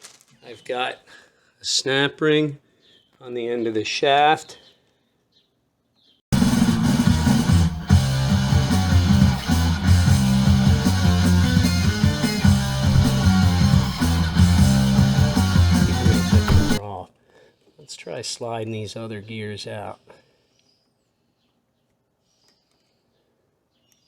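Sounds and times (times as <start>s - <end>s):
loud rock music with guitar: 6.3s - 16.8s.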